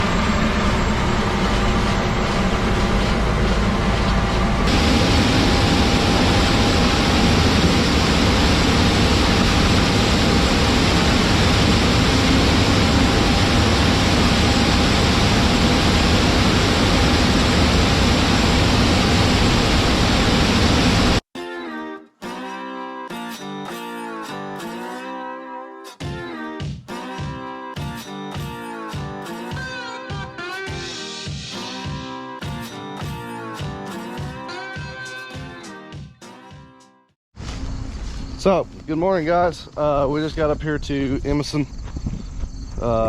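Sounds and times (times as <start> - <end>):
heavy farm machinery running: 0.0 - 21.2.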